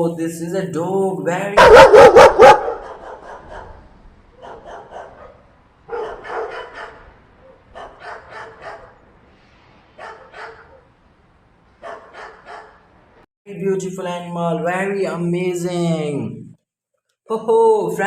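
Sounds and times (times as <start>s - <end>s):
dog barking: 1.6s - 9.0s, 10.0s - 10.9s, 11.8s - 12.8s.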